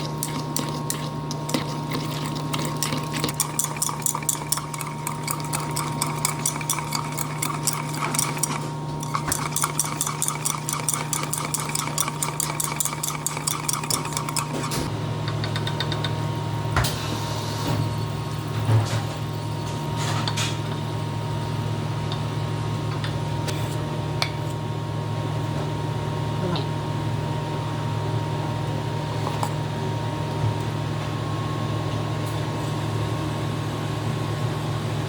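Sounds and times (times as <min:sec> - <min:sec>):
utensil beating batter in a bowl: 0:00.0 - 0:16.8
electrical hum: 0:00.0 - 0:35.0.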